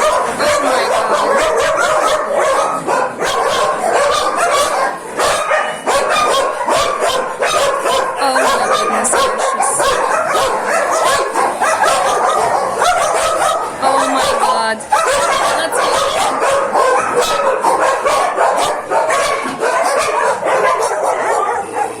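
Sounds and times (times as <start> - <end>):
dogs barking and yelping: 0.0 - 22.0.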